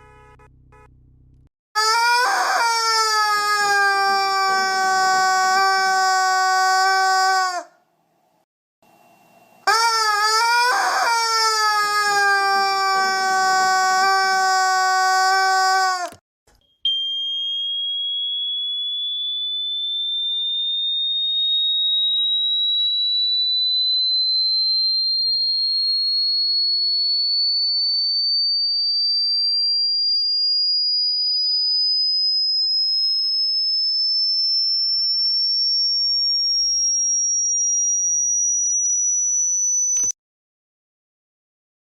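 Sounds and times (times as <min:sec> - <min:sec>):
loud buzzing tone: 0:00.0 - 0:01.3
high electronic tone rising: 0:16.9 - 0:28.3.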